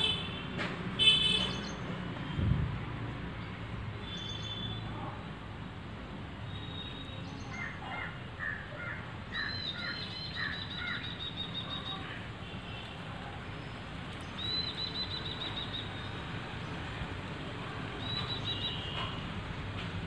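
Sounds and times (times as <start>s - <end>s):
outdoor background noise: 0.0s - 20.0s
birds calling: 6.6s - 12.3s.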